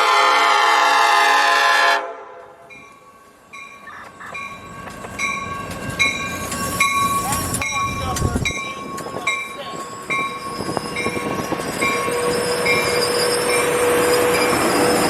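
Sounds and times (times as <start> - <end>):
locomotive air horn chord: 0.0 - 2.7
train rumbling: 0.0 - 15.0
bell ringing: 2.7 - 14.8.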